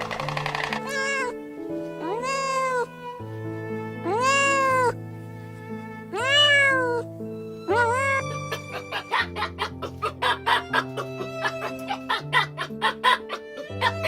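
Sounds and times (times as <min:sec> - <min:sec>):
background music with held notes: 0:00.0 - 0:14.0
cat meowing: 0:00.7 - 0:01.4, 0:02.0 - 0:03.0, 0:04.0 - 0:05.0, 0:06.1 - 0:07.0, 0:07.7 - 0:09.5.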